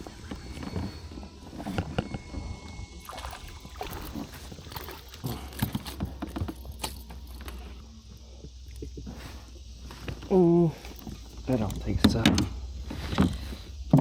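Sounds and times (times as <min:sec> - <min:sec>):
gear clicking and knocking: 0:03.4 - 0:07.8.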